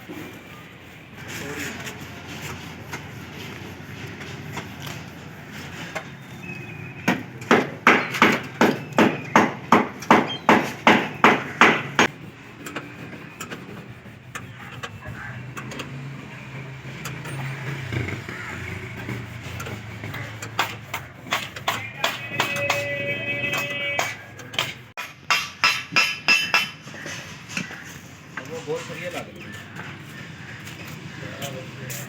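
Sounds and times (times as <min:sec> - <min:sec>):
hammer blows: 0:20.0 - 0:26.8.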